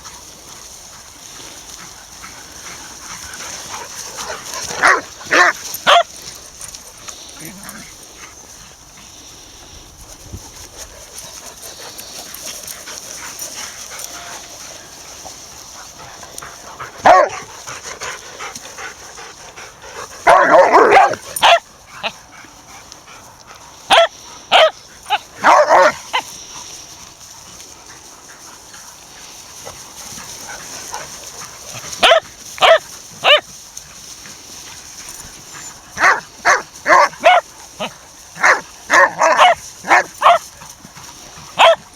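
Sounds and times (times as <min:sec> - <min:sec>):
dog barking: 0:04.2 - 0:06.1, 0:17.0 - 0:17.5, 0:20.2 - 0:21.6, 0:23.9 - 0:26.2, 0:32.0 - 0:33.4, 0:36.0 - 0:40.4, 0:41.6 - 0:41.9.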